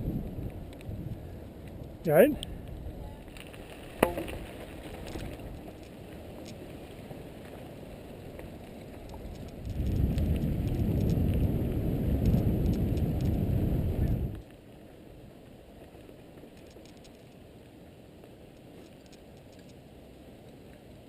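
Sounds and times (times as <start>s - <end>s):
bike tyres rumbling on dirt: 0.0s - 18.8s
bike clicks and rattles: 1.6s - 7.6s, 8.3s - 11.5s, 16.4s - 17.4s, 18.6s - 19.8s
sharp knock: 4.0s - 4.4s.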